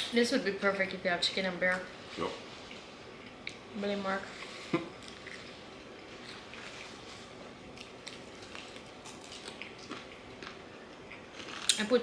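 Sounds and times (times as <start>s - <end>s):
fried chicken being chewed: 4.4s - 11.9s.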